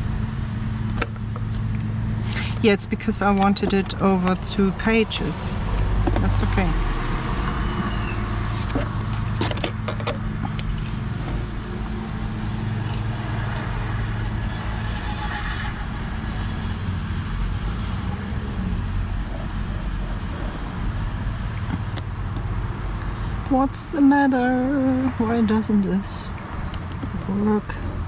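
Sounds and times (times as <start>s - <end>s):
low hum and rumble: 0.0s - 28.0s.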